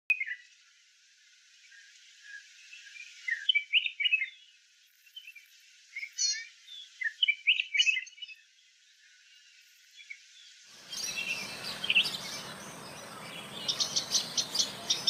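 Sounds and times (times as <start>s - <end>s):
faint hiss: 0.1s - 15.0s
birds chirping: 10.0s - 15.0s.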